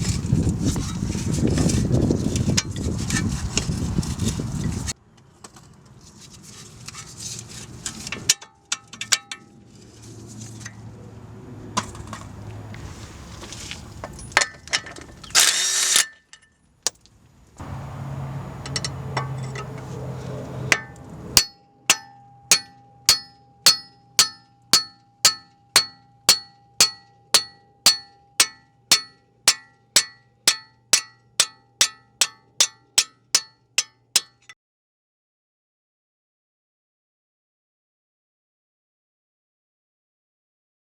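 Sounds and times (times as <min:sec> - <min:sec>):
tools clanking on metal: 0:14.0 - 0:17.0, 0:18.6 - 0:20.0, 0:20.7 - 0:34.6.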